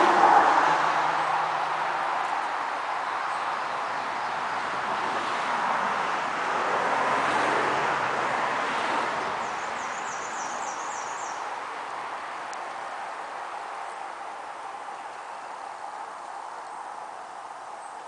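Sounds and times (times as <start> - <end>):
outdoor rushing noise: 0.0 - 9.9.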